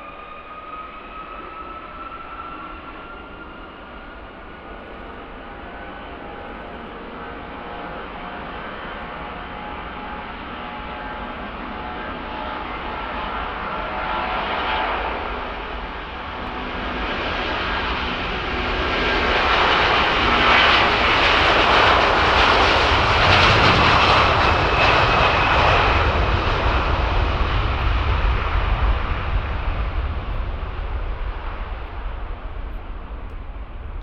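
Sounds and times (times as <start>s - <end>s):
engine whine: 0.0s - 34.0s
jet engines at takeoff power: 0.0s - 34.0s
deep rumble: 12.7s - 34.0s.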